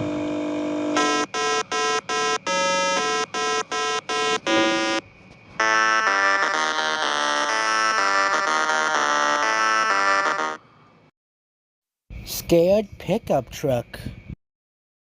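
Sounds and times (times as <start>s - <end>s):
electronic held tone: 0.0s - 10.6s
alarm-like buzzing tone: 0.4s - 10.7s
buzzy electronic beeps: 1.0s - 5.0s, 5.6s - 10.6s.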